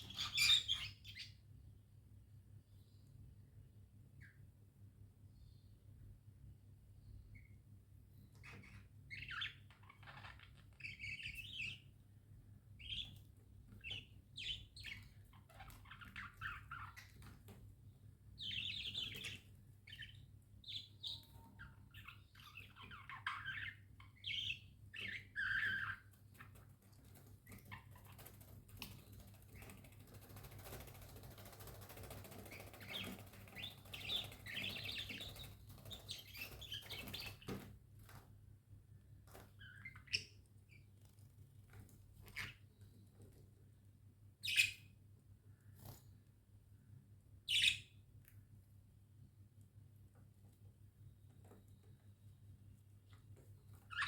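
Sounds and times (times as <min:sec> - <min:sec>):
budgerigars chirping: 0:00.0 - 0:01.4, 0:13.8 - 0:17.3, 0:18.4 - 0:26.0, 0:32.4 - 0:37.6, 0:47.5 - 0:47.9.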